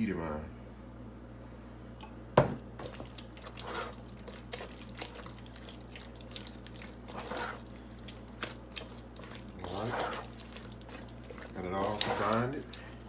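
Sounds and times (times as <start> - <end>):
wet squelching of dip stirred: 2.7 - 13.0.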